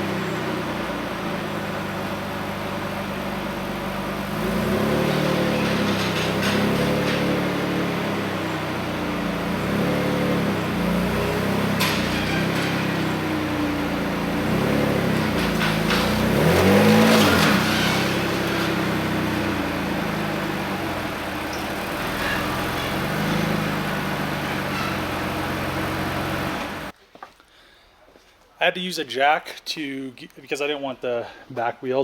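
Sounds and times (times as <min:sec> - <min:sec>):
car engine running at low speed: 0:00.0 - 0:26.9.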